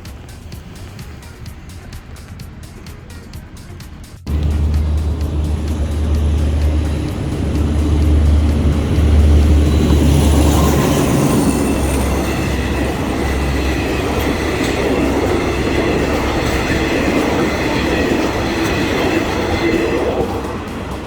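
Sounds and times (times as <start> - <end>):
heavy engine rumble: 0.0 - 21.0
train wheels clattering on rails: 0.0 - 21.0
high metallic whine: 4.3 - 21.0.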